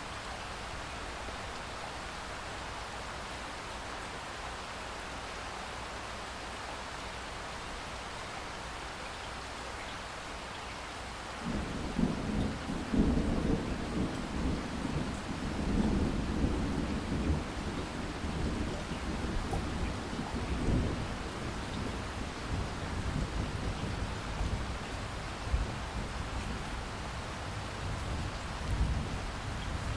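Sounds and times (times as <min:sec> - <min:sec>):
steady rain: 0:00.0 - 0:29.9
low thunder rumble: 0:11.4 - 0:29.9.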